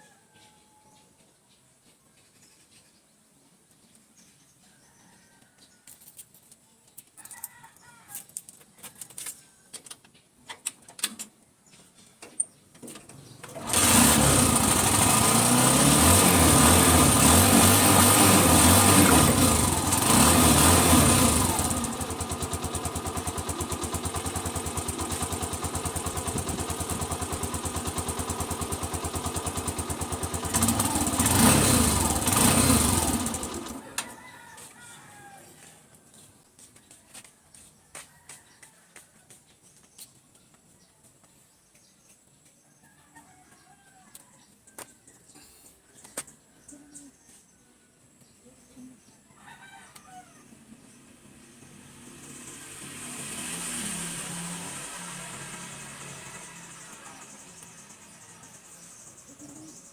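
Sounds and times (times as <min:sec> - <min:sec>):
motorcycle engine running: 0:13.2 - 0:34.2, 0:51.0 - 0:59.9.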